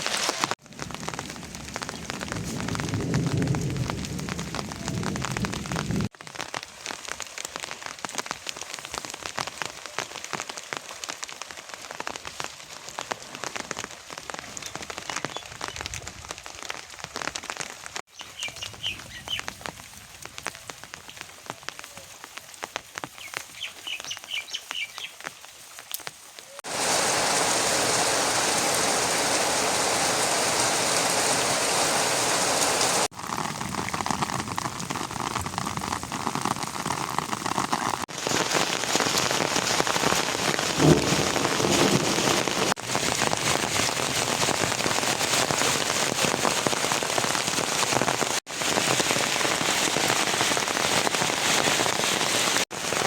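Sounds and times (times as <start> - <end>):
rain falling: 0.0 - 53.0
bird chirps: 18.1 - 19.5, 23.2 - 25.2.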